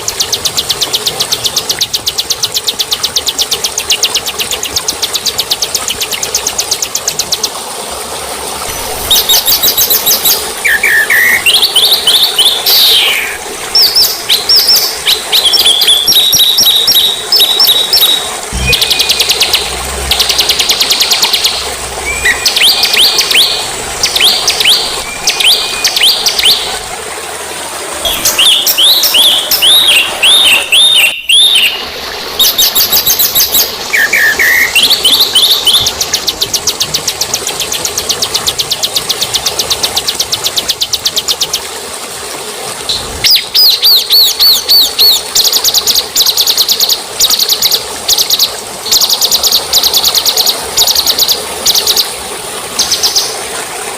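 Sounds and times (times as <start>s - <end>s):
songbirds singing: 8.8s - 26.9s, 28.0s - 41.7s.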